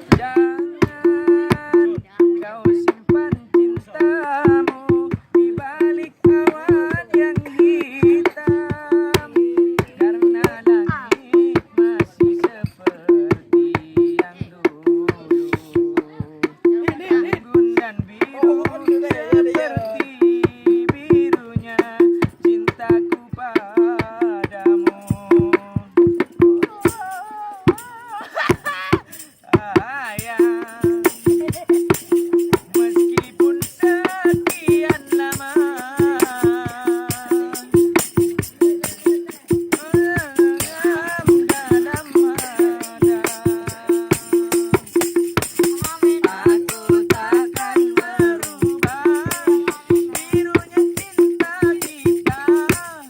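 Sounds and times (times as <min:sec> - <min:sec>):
hand drums beating: 0:00.0 - 0:53.0
high jingling rattle: 0:18.2 - 0:20.3, 0:24.5 - 0:53.0
wavering melody line: 0:18.4 - 0:20.0.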